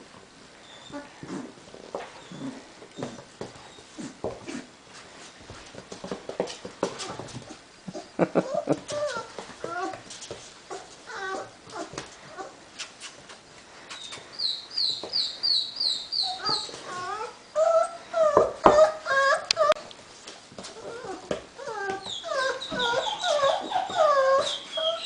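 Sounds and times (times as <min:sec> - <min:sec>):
puppies whimpering and yipping: 0:07.0 - 0:10.0, 0:10.7 - 0:12.6, 0:14.0 - 0:19.8, 0:20.8 - 0:25.0.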